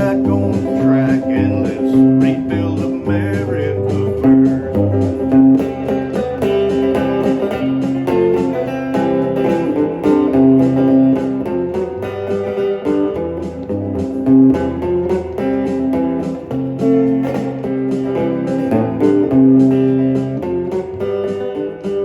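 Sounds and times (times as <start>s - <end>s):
bass guitar: 0.0s - 22.0s
country blues guitar: 0.0s - 22.0s
steady drum beat: 0.0s - 22.0s.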